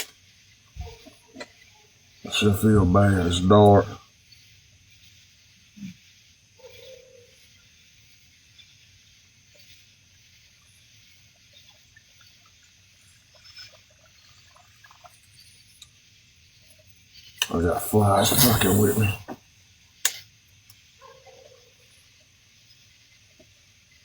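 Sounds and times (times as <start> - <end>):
steady high hiss: 0.0 - 24.0
water trickling and dripping: 10.6 - 17.6.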